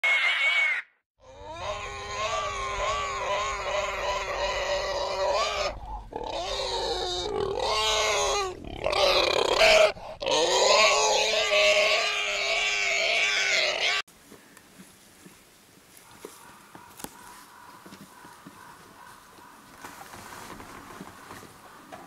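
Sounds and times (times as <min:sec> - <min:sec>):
piglets squealing: 0:00.0 - 0:14.1.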